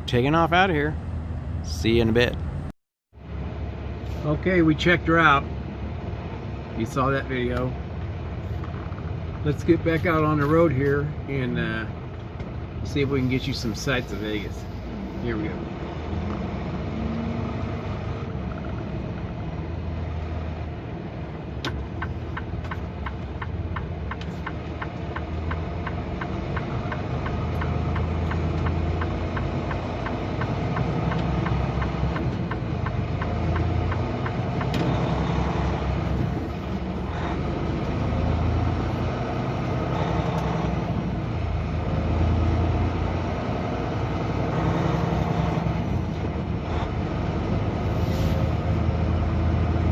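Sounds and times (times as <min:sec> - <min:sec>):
truck diesel engine pulling away: 0:13.0 - 0:49.9
evenly spaced ticks: 0:22.0 - 0:34.8.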